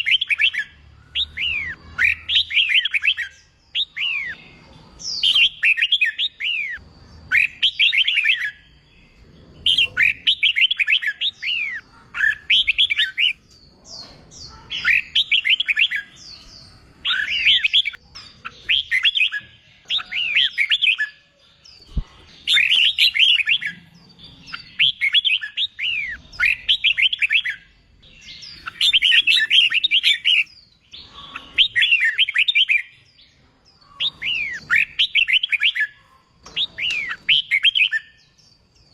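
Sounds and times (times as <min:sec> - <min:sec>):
bird singing whistled phrases: 0:00.0 - 0:04.4, 0:05.1 - 0:08.7, 0:22.4 - 0:23.8, 0:24.5 - 0:32.9, 0:34.0 - 0:36.0, 0:36.6 - 0:38.3.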